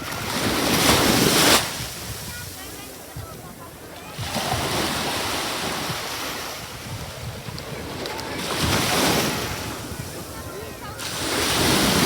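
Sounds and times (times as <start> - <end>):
sea waves breaking: 0.0 - 12.0.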